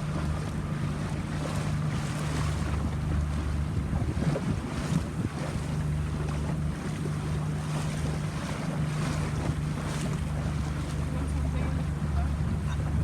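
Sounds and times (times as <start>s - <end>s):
boat engine humming: 0.0s - 13.0s
wind buffeting microphone: 3.3s - 5.8s.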